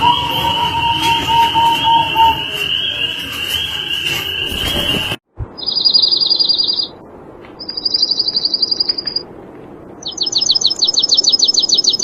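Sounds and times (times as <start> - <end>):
songbird trilling: 10.0 - 12.0.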